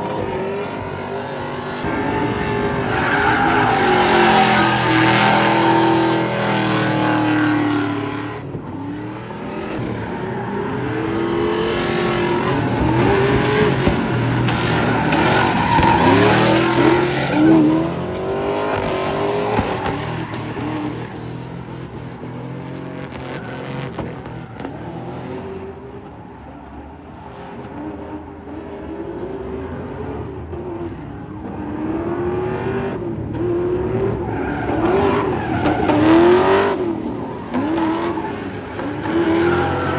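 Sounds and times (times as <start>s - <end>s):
tyre squeal: 0.0s - 11.2s, 11.9s - 21.8s, 34.2s - 39.9s
truck engine revving: 0.0s - 28.3s, 29.6s - 39.9s.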